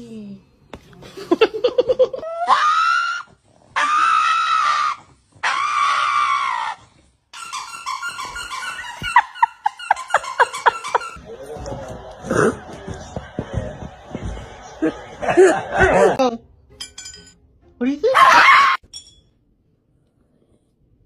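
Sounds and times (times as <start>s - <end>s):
dog screaming and yelping: 2.3s - 11.2s, 18.1s - 18.8s.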